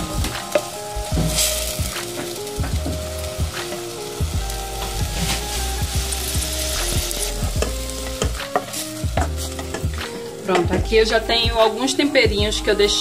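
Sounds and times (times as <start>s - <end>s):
garlic and onion sizzling in oil: 0.0s - 13.0s.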